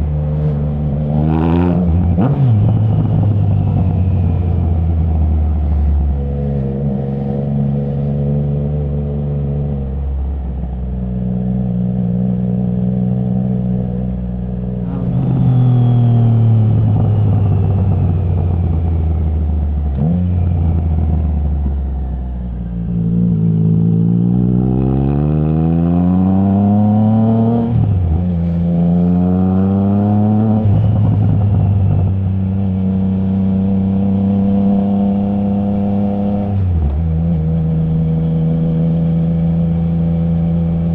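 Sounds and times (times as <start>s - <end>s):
motorcycle engine revving: 22.8s - 40.9s.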